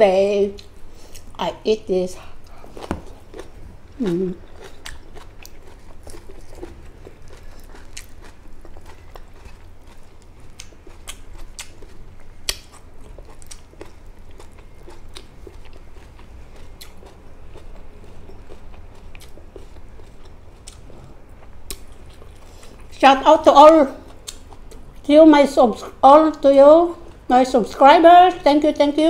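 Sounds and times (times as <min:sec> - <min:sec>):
faint low hum: 0:00.0 - 0:29.0
person chewing food: 0:02.2 - 0:23.0, 0:24.0 - 0:25.1.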